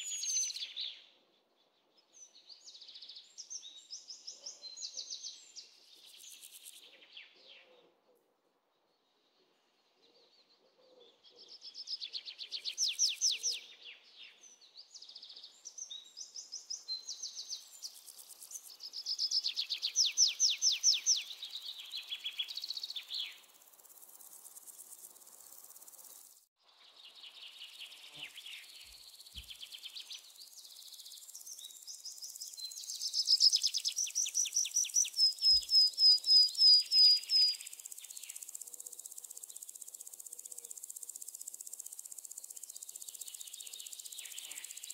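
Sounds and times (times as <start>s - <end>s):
high insect hiss: 6.0s - 6.8s, 17.2s - 26.5s, 27.3s - 44.9s.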